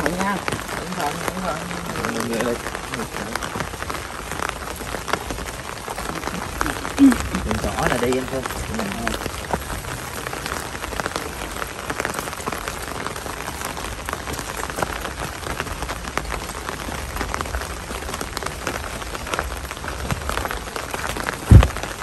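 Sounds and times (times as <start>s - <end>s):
steady rain falling: 0.0s - 22.0s
loud low thump: 21.4s - 22.0s.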